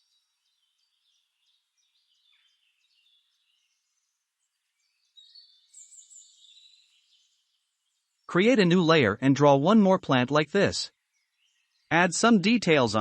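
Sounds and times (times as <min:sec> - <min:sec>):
faint birdsong chirps: 0:00.0 - 0:13.0.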